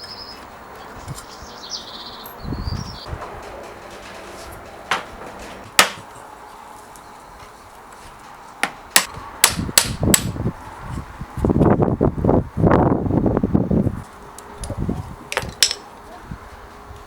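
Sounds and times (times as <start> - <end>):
rough continuous noise: 0.0 - 17.0
hammer strikes: 4.8 - 6.1, 8.6 - 10.4.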